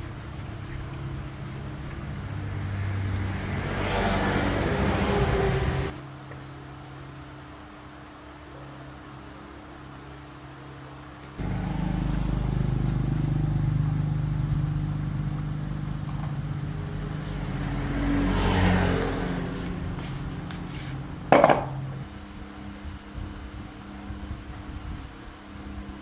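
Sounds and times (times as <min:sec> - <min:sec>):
electrical machine hum: 0:11.4 - 0:22.1.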